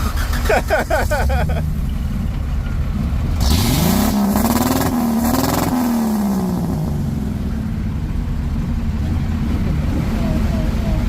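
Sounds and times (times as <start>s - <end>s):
vehicle engine revving: 3.0s - 11.0s.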